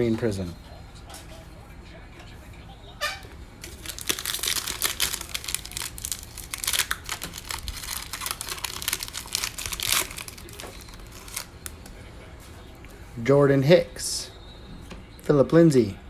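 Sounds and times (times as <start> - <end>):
card pack wrapper crinkling and tearing: 3.6 - 11.8.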